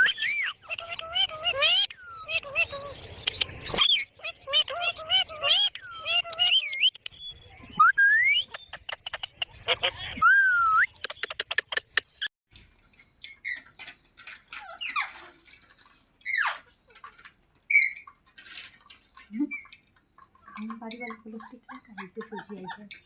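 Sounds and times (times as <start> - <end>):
parrot squawks: 0.0 - 2.9, 3.7 - 6.9
parrot chirps: 0.0 - 10.1
whistled pitch glide: 7.7 - 8.7.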